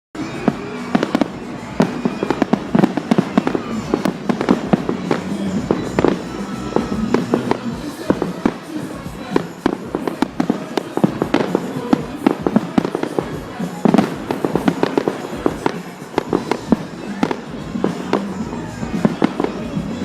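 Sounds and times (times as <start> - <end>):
fireworks bangs and pops: 0.2 - 20.0.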